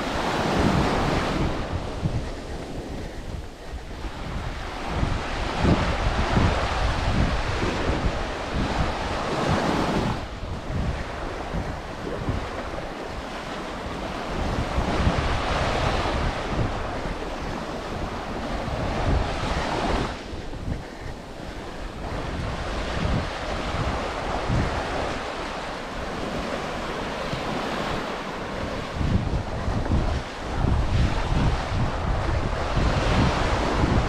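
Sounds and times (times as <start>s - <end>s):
surf breaking on beach: 0.0s - 34.0s
wind buffeting microphone: 0.0s - 34.0s.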